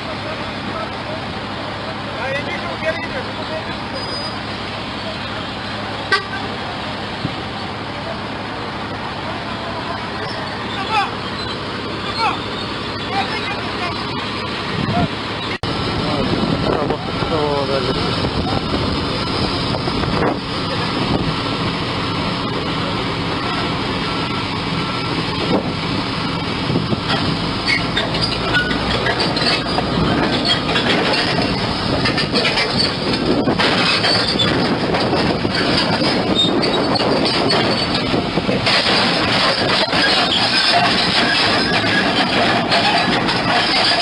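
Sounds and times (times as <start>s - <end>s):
bulldozer diesel engine: 0.0s - 44.0s
steel tracks clanking and squealing: 0.0s - 44.0s.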